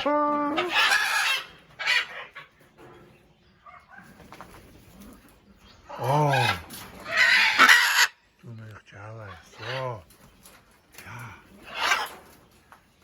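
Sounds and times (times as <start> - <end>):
parrot squawking: 0.0 - 2.3, 6.3 - 8.2.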